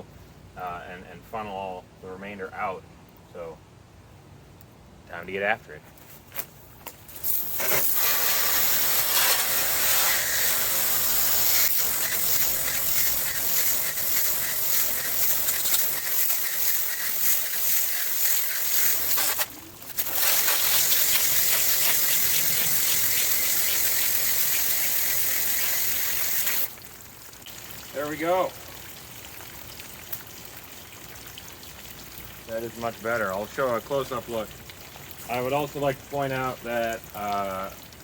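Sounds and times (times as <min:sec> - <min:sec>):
hose spraying water: 0:07.1 - 0:26.8.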